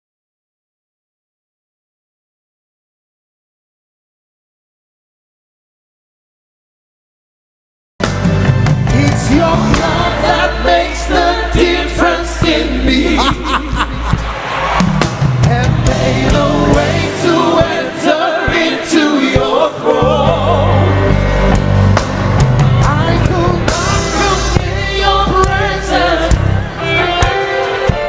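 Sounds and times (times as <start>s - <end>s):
band with bass and drums: 8.0s - 28.0s
voices singing gospel: 8.9s - 28.0s.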